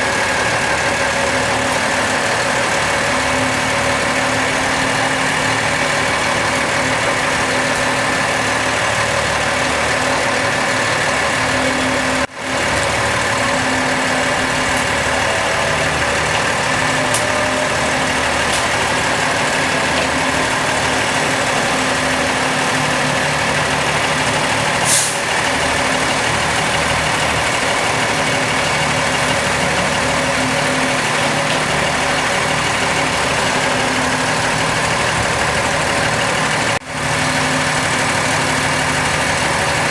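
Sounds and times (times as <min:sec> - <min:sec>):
heavy vehicle engine running: 0:00.0 - 0:39.9
short high hiss: 0:24.8 - 0:25.2.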